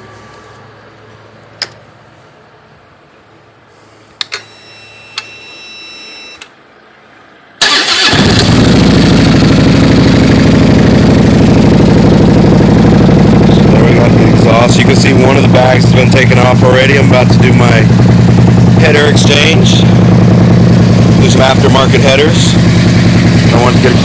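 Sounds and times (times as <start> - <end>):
starter clicks and whine: 7.6 - 10.1, 10.9 - 24.0
motorcycle engine idling: 7.7 - 24.0.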